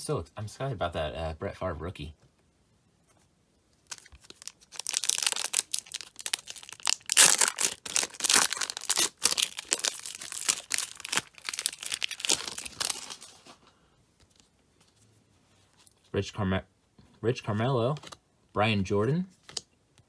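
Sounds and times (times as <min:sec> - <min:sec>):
wrapper tearing and crinkling: 0:03.8 - 0:13.6.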